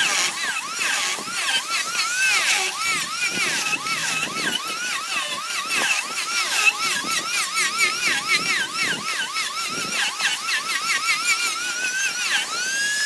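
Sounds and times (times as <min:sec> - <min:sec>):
power tool whining cutting wood: 0:00.0 - 0:13.0.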